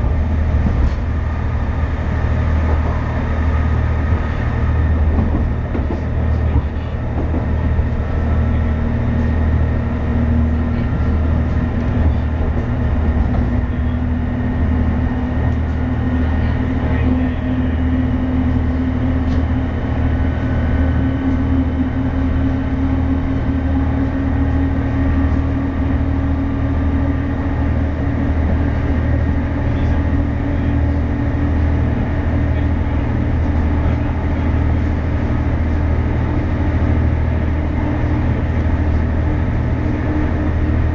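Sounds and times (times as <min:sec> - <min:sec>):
train rumbling with rising whine: 0:00.0 - 0:40.9.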